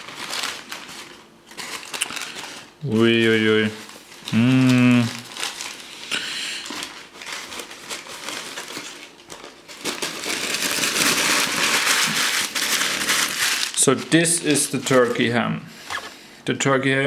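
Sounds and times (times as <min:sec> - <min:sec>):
paper wrapper crinkling: 0:00.0 - 0:15.4
person humming: 0:04.2 - 0:05.3.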